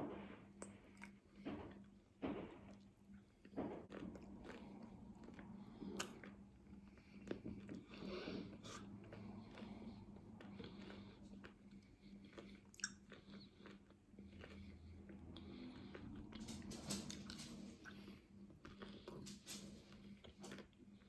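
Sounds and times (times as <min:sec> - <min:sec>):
wet chewing: 0:03.4 - 0:16.4.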